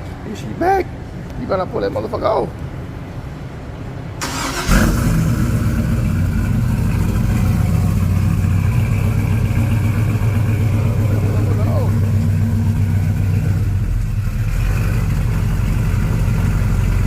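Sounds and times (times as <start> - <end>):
car engine cranking and idling: 4.2 - 17.0.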